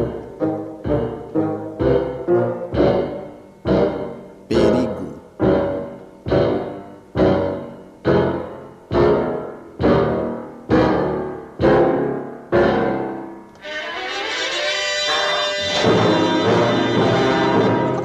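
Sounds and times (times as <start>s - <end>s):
orchestral music: 15.2s - 18.0s.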